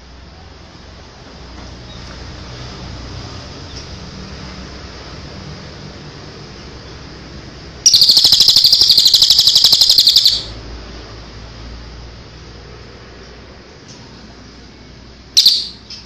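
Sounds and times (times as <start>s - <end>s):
songbird trill: 7.9s - 10.6s, 15.4s - 16.0s.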